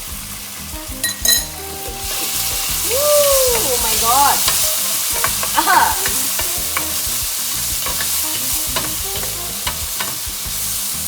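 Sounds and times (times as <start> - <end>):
food sizzling in hot oil: 0.0 - 11.0
utensil clicking against pan: 3.5 - 10.6.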